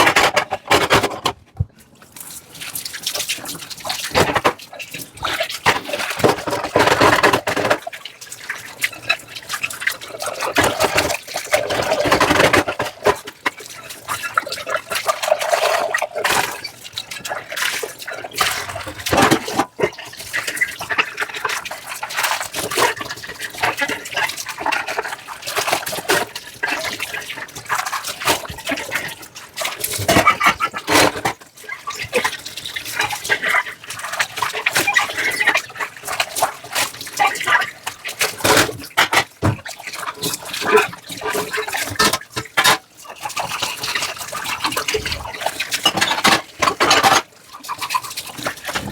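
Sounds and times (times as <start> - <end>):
dishes clattering: 0.0 - 1.7, 45.8 - 47.2
water splashing and running: 0.0 - 48.9.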